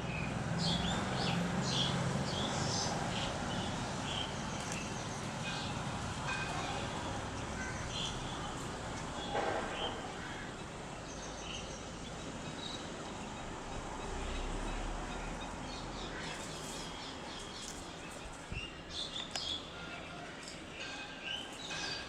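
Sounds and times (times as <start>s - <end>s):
birds chirping: 0.1s - 22.0s.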